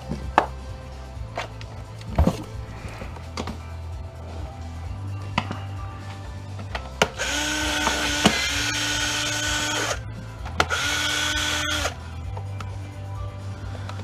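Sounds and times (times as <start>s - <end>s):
drill click: 7.1s - 10.0s, 10.6s - 12.0s
power screwdriver whining: 7.1s - 10.0s, 10.6s - 12.0s.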